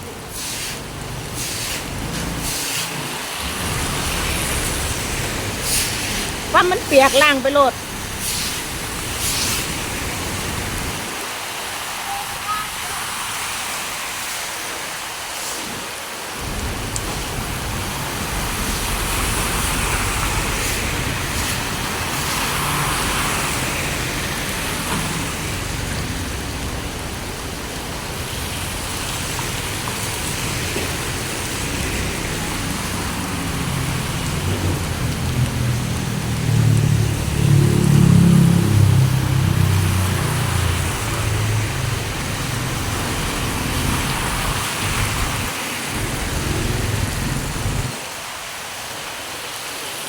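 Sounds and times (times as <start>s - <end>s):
heavy rain pouring: 0.0s - 50.0s
vehicle engine: 3.4s - 10.9s, 29.4s - 48.0s.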